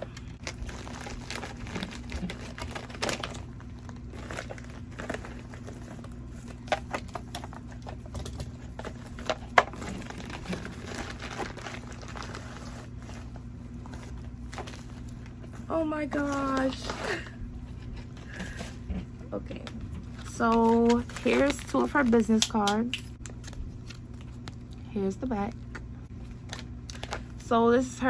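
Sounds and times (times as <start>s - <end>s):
packaging crinkling and rustling: 0.0s - 18.8s, 19.6s - 24.8s, 25.6s - 27.4s.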